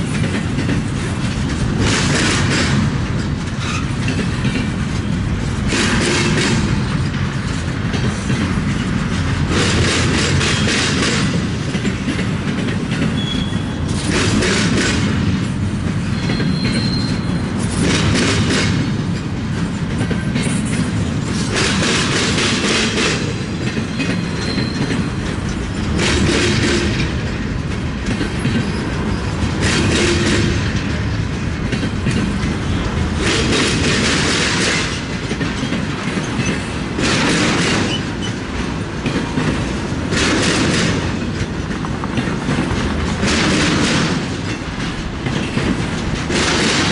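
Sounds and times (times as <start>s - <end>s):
train rumble: 0.0s - 46.9s
train wheels clacking on rail joints: 0.0s - 46.9s
loud rushing noise: 39.4s - 46.9s.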